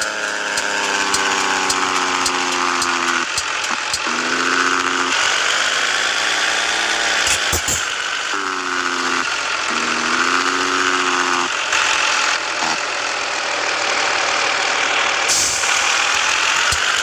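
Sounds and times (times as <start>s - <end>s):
pitched hum: 0.0s - 5.4s, 7.2s - 11.5s
road noise: 0.0s - 17.0s
truck engine drone: 0.0s - 17.0s.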